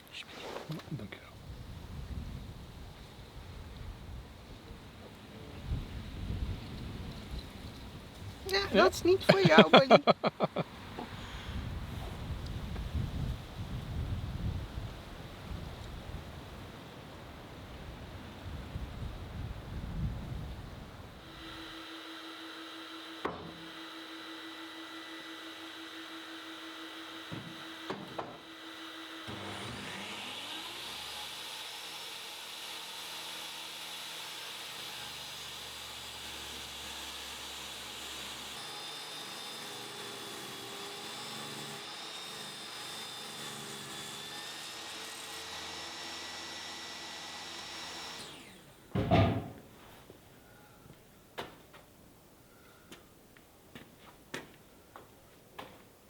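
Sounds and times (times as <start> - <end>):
woodworking power tool running: 21.2 - 49.0
loud knocks: 49.0 - 49.6.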